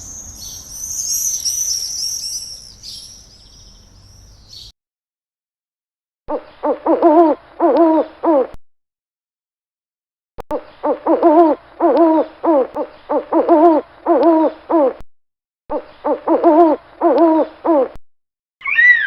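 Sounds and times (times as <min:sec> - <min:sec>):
animal call in short notes: 0:18.6 - 0:19.0.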